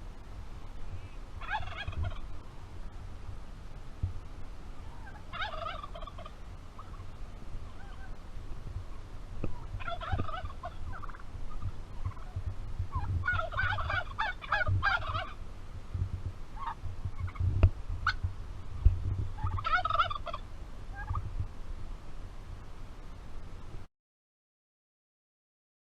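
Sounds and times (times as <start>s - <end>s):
turkey gobbling: 1.4s - 2.3s, 4.8s - 8.2s, 9.5s - 15.4s, 16.6s - 17.4s, 18.0s - 18.2s, 19.4s - 21.2s
low rumble: 7.3s - 22.8s.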